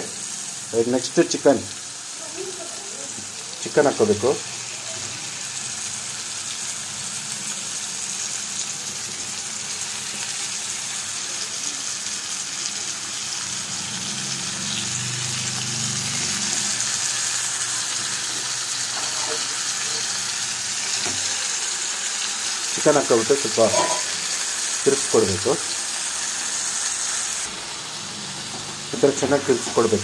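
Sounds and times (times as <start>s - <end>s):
food sizzling in a frying pan: 0.0s - 30.0s.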